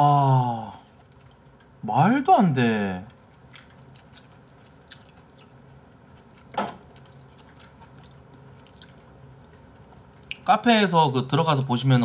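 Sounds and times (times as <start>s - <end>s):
person chewing food: 0.8s - 1.8s, 3.1s - 10.5s.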